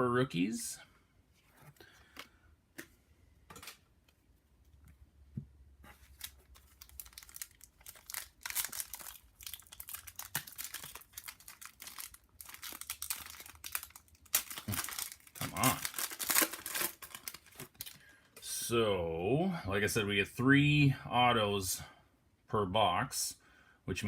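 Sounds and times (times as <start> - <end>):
foil wrapper crinkling: 6.0 - 18.1.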